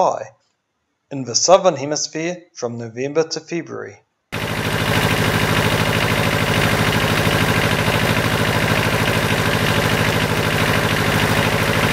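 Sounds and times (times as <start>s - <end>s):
engine throbbing: 4.4s - 11.9s.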